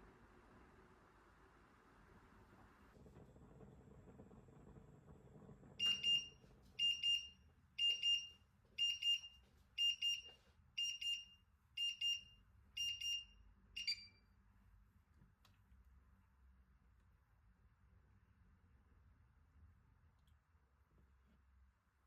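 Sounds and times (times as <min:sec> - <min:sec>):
kitchen timer beeping: 0:05.8 - 0:14.2.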